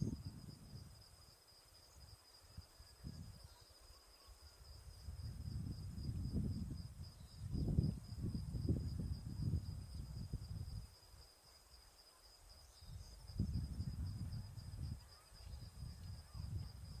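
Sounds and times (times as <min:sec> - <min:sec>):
wind rumble on microphone: 0:00.0 - 0:01.3, 0:01.9 - 0:03.5, 0:04.6 - 0:11.0, 0:12.8 - 0:17.0
high-pitched insect trill: 0:00.0 - 0:17.0.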